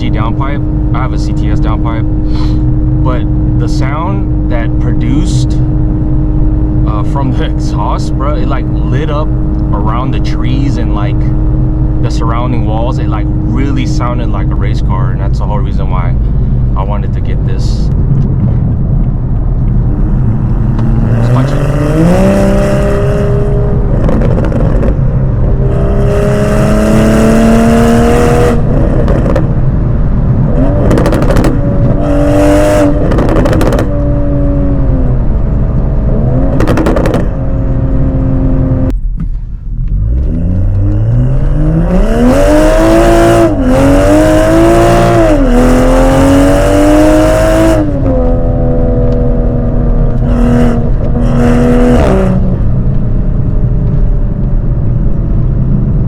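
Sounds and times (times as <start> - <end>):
car accelerating hard: 18.2 - 38.9, 39.8 - 56.0.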